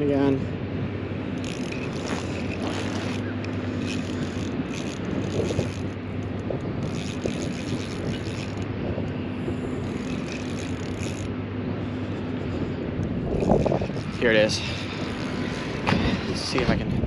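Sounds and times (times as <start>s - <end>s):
low hum: 0.0s - 17.0s
wind noise: 0.0s - 17.0s
fishing reel drag clicking: 1.2s - 16.8s.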